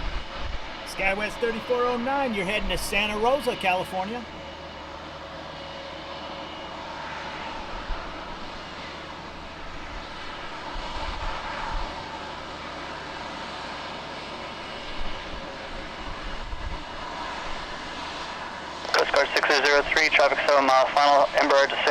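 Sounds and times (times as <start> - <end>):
jet engines roaring: 0.0 - 21.9.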